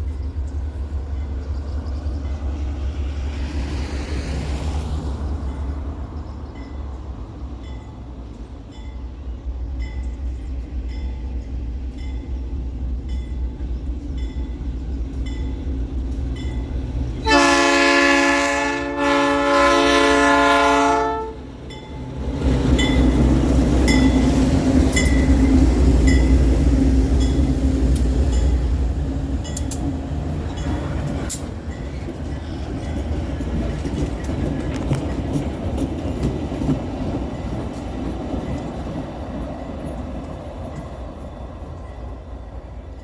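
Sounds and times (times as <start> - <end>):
locomotive engine rumble: 0.0 - 43.0
locomotive horn: 17.2 - 21.5
wheel clicks on rail joints: 29.5 - 38.7.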